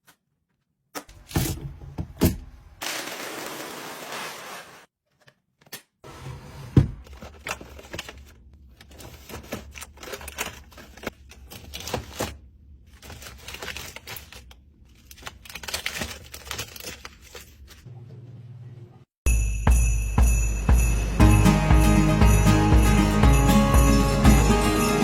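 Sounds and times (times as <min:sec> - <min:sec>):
plastic packaging crinkling: 0:07.1 - 0:17.9.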